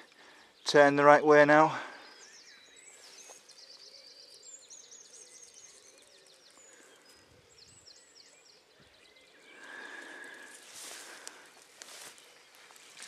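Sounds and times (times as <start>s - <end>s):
faint birdsong: 0.0s - 13.0s.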